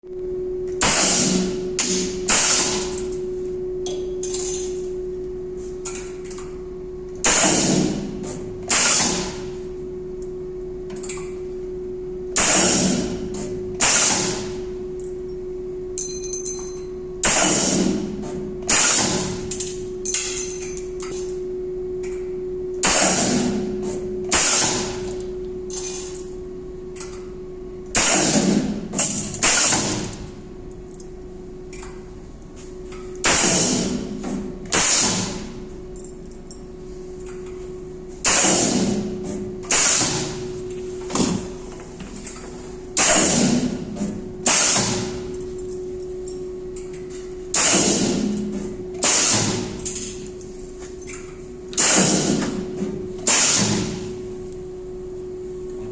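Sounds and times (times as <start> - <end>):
machine hum: 0.0 - 55.9
welding machine clunks: 7.2 - 9.5, 12.4 - 14.6, 17.2 - 21.4, 28.0 - 30.3, 38.2 - 45.3, 51.1 - 54.2.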